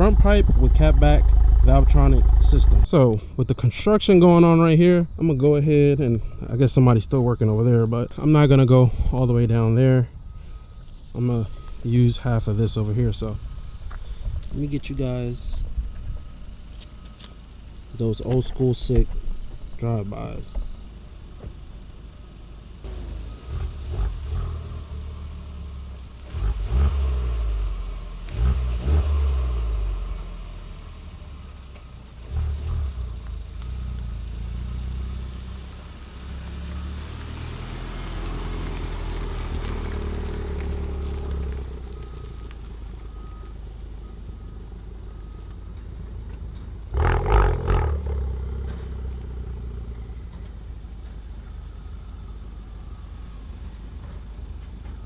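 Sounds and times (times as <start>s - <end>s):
car engine accelerating: 0.0s - 2.9s, 20.8s - 45.6s, 46.2s - 55.0s.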